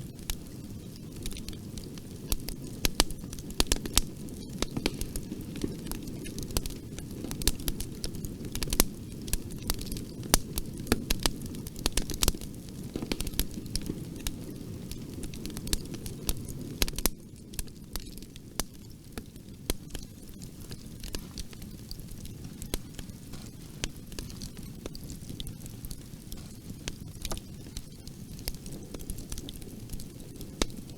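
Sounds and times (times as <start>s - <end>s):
bonfire crackling and popping: 0.0s - 30.9s
low rush of burning: 0.1s - 16.2s.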